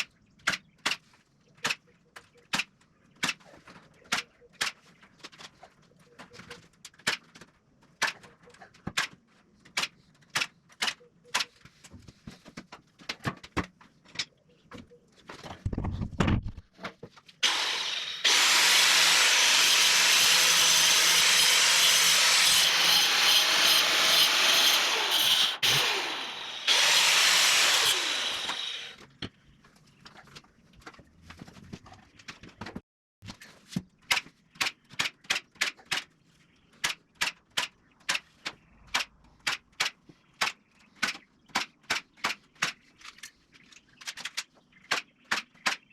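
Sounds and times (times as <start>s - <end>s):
power saw cutting wood: 17.4s - 29.0s.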